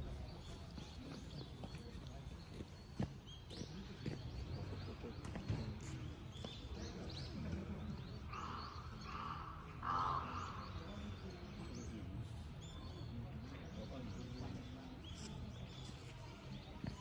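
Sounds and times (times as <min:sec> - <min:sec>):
small birds chirping: 0:00.0 - 0:17.0
loud bird calls: 0:08.1 - 0:11.2.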